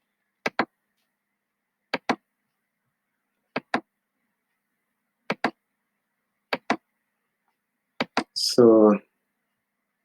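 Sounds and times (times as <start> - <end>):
computer mouse clicking: 0.4 - 0.7, 1.9 - 2.2, 3.5 - 3.9, 5.3 - 5.6, 6.5 - 6.8, 8.0 - 8.3.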